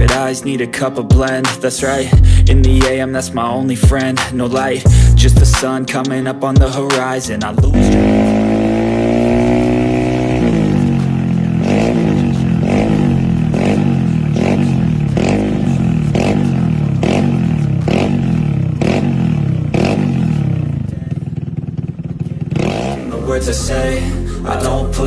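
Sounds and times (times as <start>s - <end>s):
scooter engine revving: 7.4s - 23.9s.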